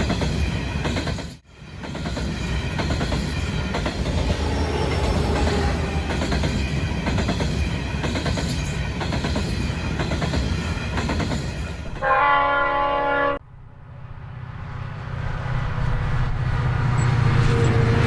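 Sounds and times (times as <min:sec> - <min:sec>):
train wheels clattering over rails: 0:00.0 - 0:12.0
locomotive horn: 0:12.0 - 0:13.4.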